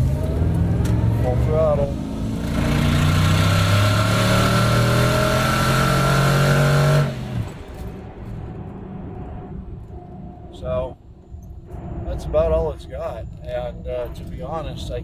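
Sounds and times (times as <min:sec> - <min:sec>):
pickup engine at full throttle: 0:00.0 - 0:08.1.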